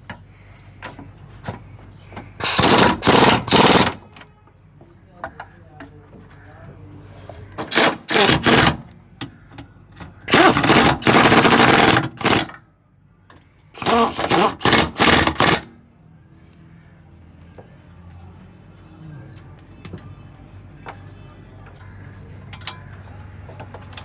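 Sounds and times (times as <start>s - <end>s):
power tool rattling in bursts: 2.4s - 4.2s, 7.6s - 8.9s, 10.3s - 12.6s, 13.8s - 15.7s.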